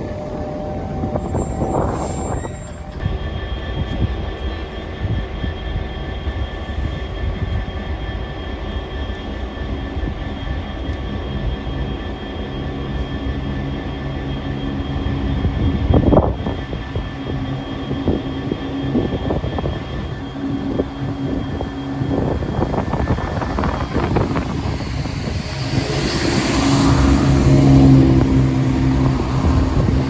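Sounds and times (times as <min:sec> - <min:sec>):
train rumbling: 0:00.0 - 0:30.0
high steady tones: 0:11.4 - 0:30.0.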